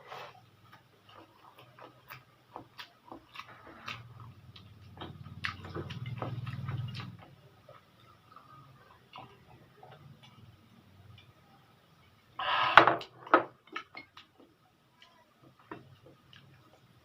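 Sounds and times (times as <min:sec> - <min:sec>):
chewing noodles mouth sounds: 0:01.0 - 0:10.4.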